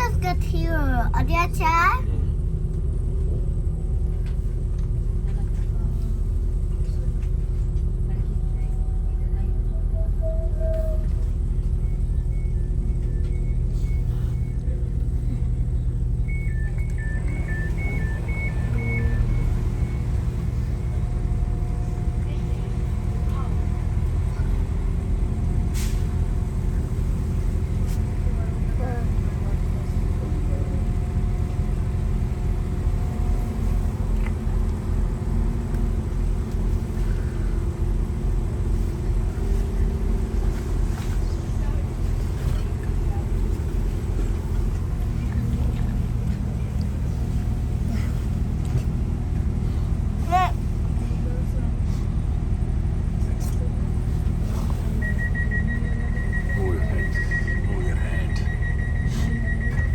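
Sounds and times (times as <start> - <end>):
faint engine hum: 0.0 - 59.9
train rumble inside carriage: 0.0 - 59.9
faint single beeps: 54.9 - 59.9.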